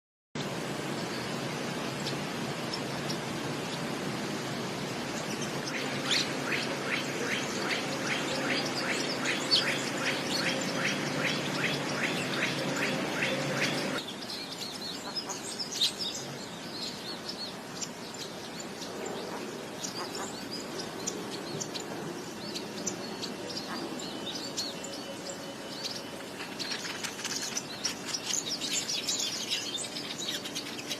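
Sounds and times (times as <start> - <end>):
background hiss: 0.4 - 30.9
bird chirping: 5.1 - 30.9.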